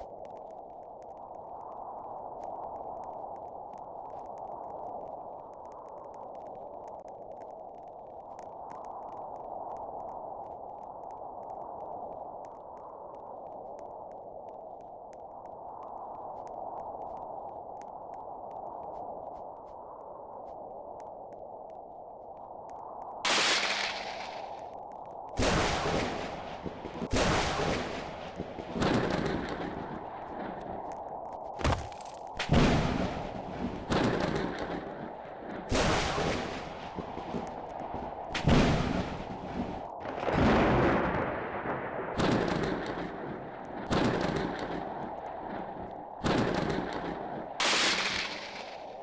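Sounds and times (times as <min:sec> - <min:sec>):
thunder cracking and rumbling: 0:23.3 - 0:24.8, 0:25.4 - 0:30.9, 0:32.4 - 0:49.0.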